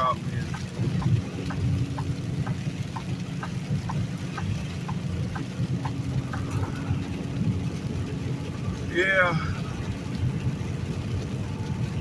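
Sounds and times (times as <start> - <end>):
diesel engine rumble: 0.0 - 12.0
turn signal clicking: 0.4 - 6.8.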